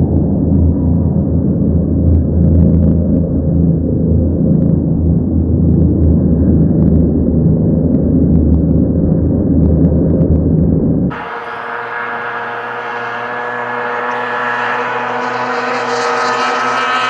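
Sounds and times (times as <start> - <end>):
engine whine: 11.1 - 17.0
racing boat engine rumbling: 11.1 - 17.0.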